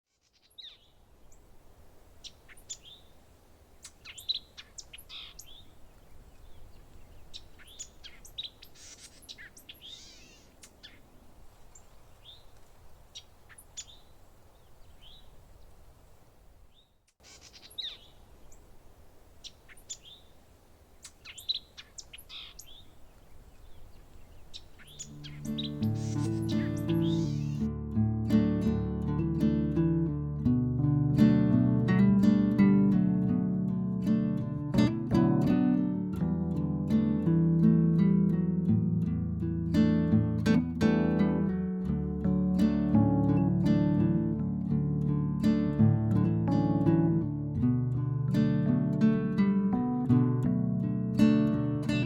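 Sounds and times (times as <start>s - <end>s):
songbirds chirping: 0.1s - 27.7s
faint low background noise: 0.1s - 52.0s.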